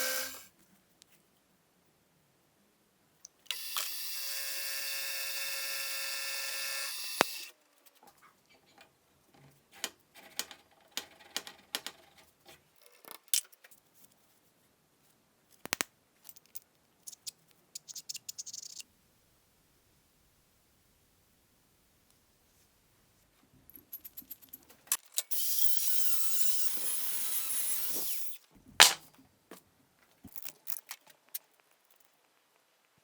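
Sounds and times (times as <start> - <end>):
electric power tool motor running: 0.0 - 0.4
metal parts clinking: 30.3 - 31.1.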